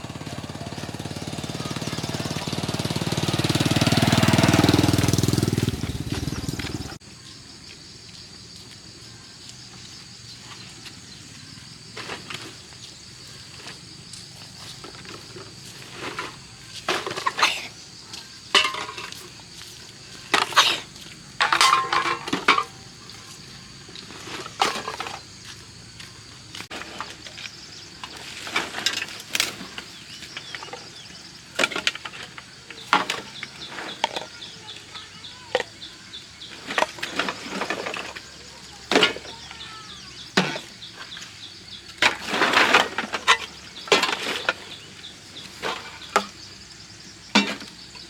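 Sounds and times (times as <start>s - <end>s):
high insect drone: 0.0s - 48.0s
hard objects clinking and clattering: 18.5s - 19.3s, 20.3s - 22.8s.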